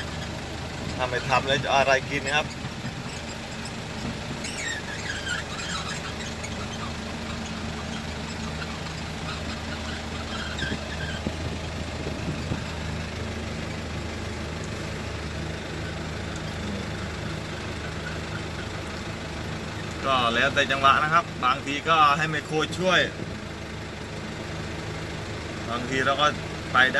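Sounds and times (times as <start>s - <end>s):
short high squeaks: 0.0s - 21.1s
diesel truck engine running: 0.0s - 26.9s.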